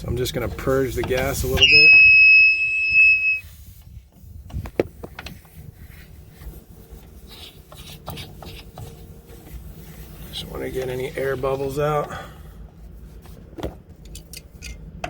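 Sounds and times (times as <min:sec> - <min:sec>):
gas whistling from a fitting: 0:01.5 - 0:03.6.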